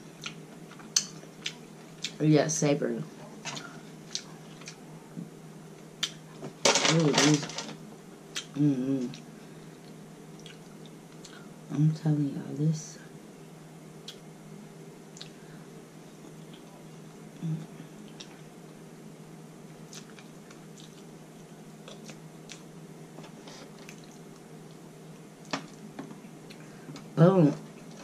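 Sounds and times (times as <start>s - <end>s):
quiet chewing and wet mouth sounds: 0.0s - 2.2s, 3.2s - 6.4s, 8.3s - 11.5s, 14.0s - 14.3s, 15.1s - 15.5s, 16.2s - 18.8s, 19.7s - 27.1s
steady low hum: 0.0s - 28.0s.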